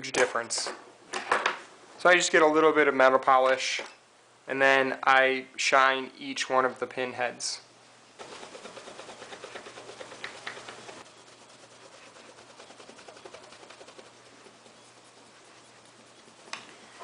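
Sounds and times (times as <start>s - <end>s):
hand rubbing polish on metal: 8.2s - 17.0s.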